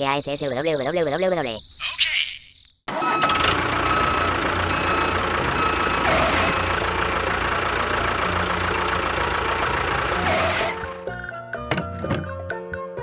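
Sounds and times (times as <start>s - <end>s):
machine engine droning: 2.9s - 11.0s.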